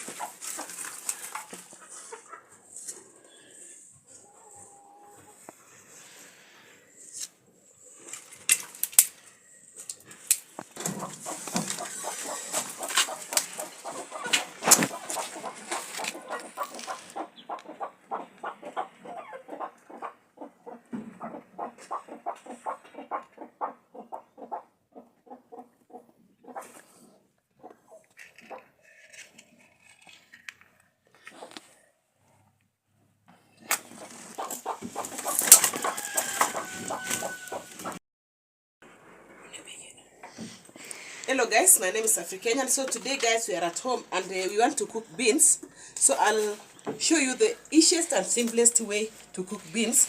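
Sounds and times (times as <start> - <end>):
chickens clucking: 0.0 - 5.9, 10.6 - 28.8, 31.3 - 31.8, 33.7 - 38.0
birds calling: 10.8 - 25.7.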